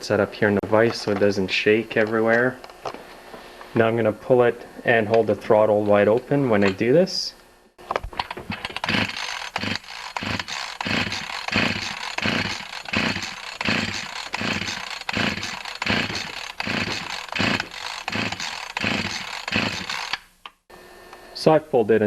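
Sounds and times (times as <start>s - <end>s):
chainsaw recoil starter pulls: 7.9s - 20.3s.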